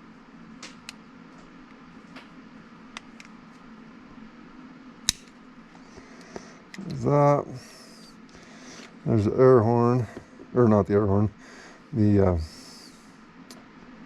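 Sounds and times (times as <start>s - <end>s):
low hum: 0.0s - 14.0s
plastic snapping: 5.1s - 5.4s.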